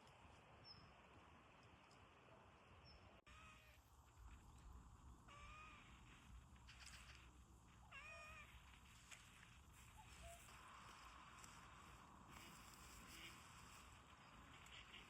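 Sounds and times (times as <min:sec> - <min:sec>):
cat meowing: 0:05.3 - 0:06.0, 0:07.8 - 0:08.6.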